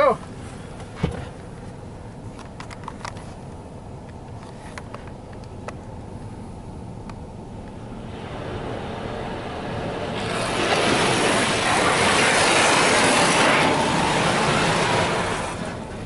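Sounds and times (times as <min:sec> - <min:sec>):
car wash spraying water: 0:07.7 - 0:16.0.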